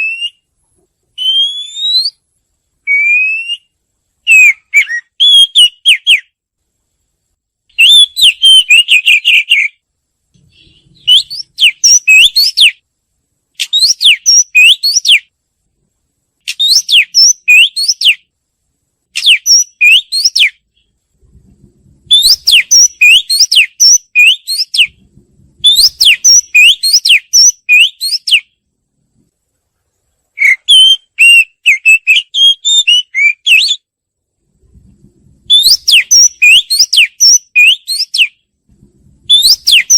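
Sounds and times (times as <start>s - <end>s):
bird singing whistled phrases: 0.0s - 0.4s, 1.2s - 2.2s, 2.8s - 6.4s, 7.8s - 9.8s, 10.6s - 12.8s, 13.6s - 15.3s, 16.5s - 18.3s, 19.2s - 20.6s, 22.1s - 25.0s, 25.6s - 28.5s, 30.4s - 33.9s, 35.5s - 38.4s, 39.3s - 39.9s.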